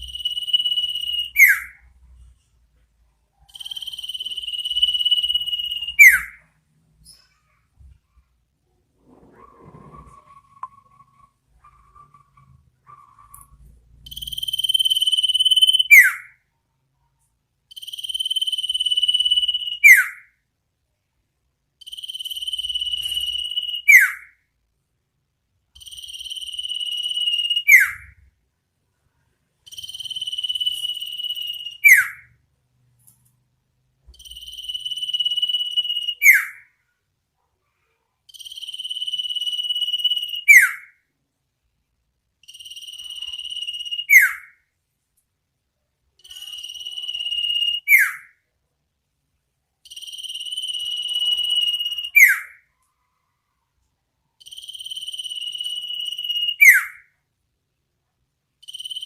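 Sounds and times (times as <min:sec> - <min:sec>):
bird whistling call: 0:00.0 - 0:01.8, 0:03.5 - 0:06.4, 0:43.0 - 0:44.5, 0:50.5 - 0:52.6.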